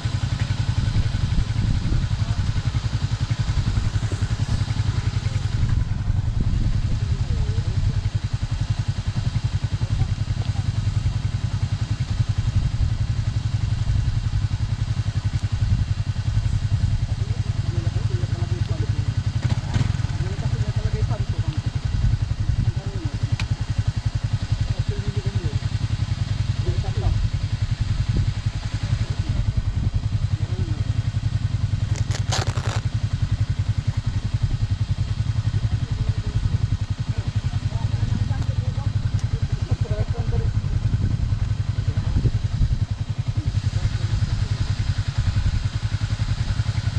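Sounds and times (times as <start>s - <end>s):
scooter engine rumbling: 0.0s - 46.9s.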